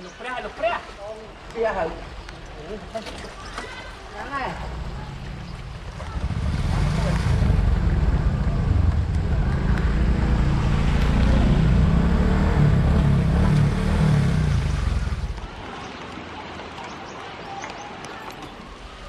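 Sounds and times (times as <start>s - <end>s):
loud low engine running: 4.7s - 15.4s.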